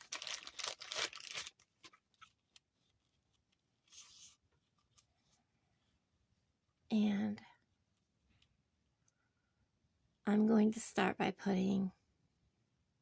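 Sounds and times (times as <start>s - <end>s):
packaging crinkling and rustling: 0.0s - 2.7s.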